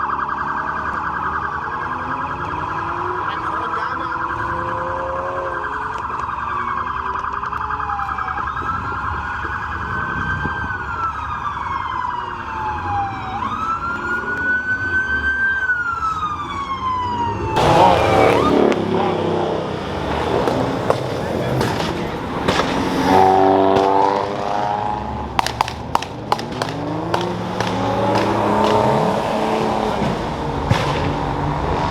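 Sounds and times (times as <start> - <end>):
siren wailing: 0.0 - 30.8.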